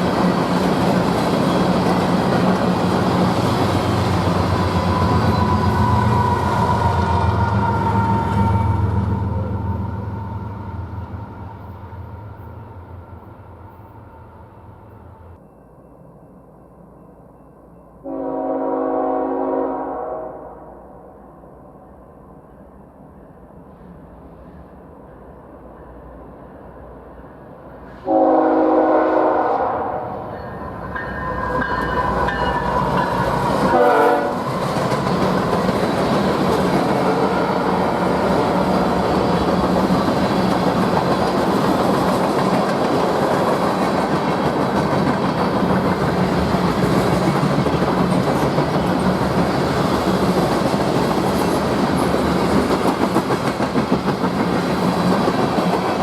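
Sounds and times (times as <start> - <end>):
train rumbling past on rails: 0.0 - 56.0
locomotive air horn blasts: 4.9 - 11.1, 18.0 - 20.7, 28.0 - 30.1, 33.7 - 34.4.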